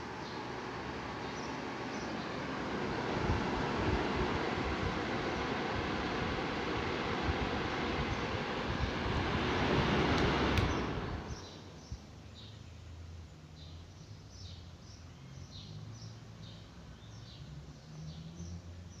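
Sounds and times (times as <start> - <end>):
table fan airflow: 0.0 - 12.2
bird chirping: 1.2 - 2.4, 10.7 - 19.0
fan switch click: 9.8 - 11.4.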